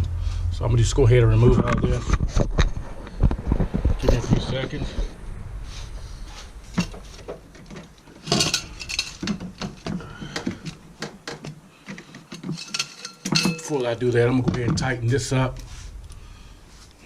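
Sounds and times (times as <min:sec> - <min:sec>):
metal tools clinking: 0:06.7 - 0:10.8, 0:11.4 - 0:14.2.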